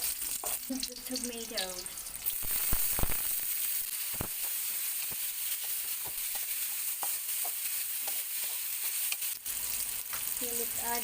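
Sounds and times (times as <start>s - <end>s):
food sizzling in a pan: 0.0s - 11.0s
utensil clicking on pan: 4.1s - 10.4s.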